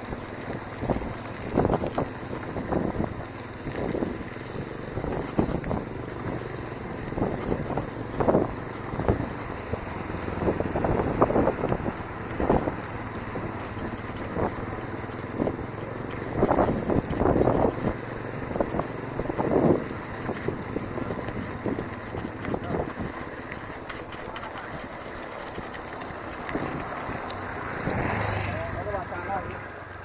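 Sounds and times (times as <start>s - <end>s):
wind buffeting microphone: 0.0s - 29.7s
bicycle tyres rumbling on dirt: 0.0s - 30.0s
bike knocking and rattling: 0.0s - 30.0s.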